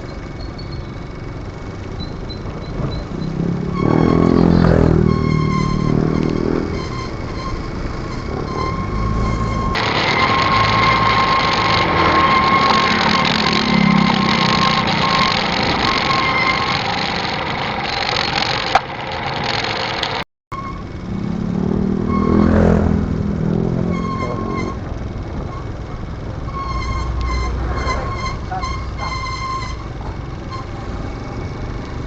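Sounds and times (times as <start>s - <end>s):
thin steady whine: 0.0s - 22.6s
low engine note: 0.0s - 32.0s
motorcycle running: 0.0s - 32.0s.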